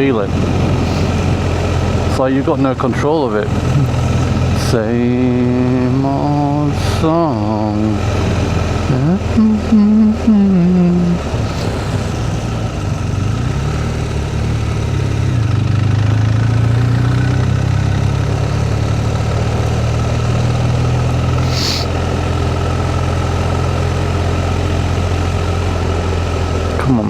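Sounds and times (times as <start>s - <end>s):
motorcycle engine running: 0.0s - 27.0s
brief hiss: 21.4s - 21.9s.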